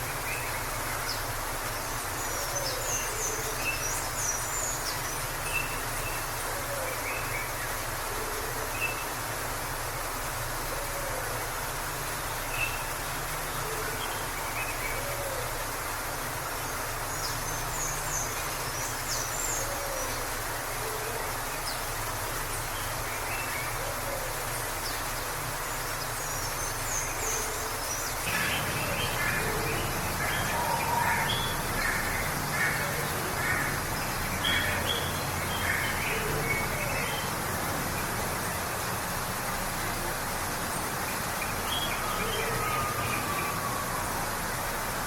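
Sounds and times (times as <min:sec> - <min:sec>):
waterfall rushing: 0:00.0 - 0:45.0
birds chirping: 0:24.6 - 0:39.2.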